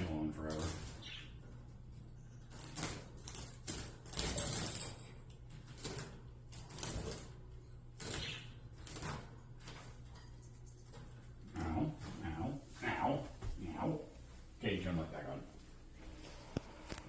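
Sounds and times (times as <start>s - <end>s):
hands rattling wire bird cage: 0.0s - 12.8s.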